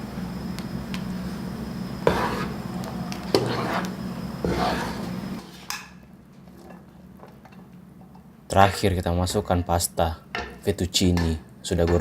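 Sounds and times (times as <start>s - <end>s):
steady low hum: 0.0s - 12.0s
utensil stirring sauce in a pan: 2.1s - 5.5s.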